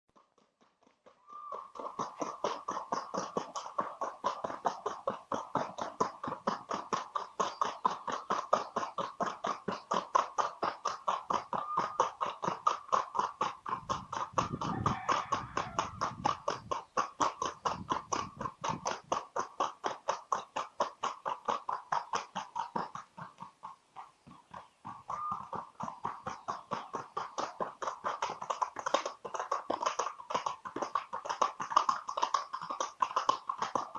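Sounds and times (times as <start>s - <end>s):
horse hoofbeats: 0.1s - 33.9s.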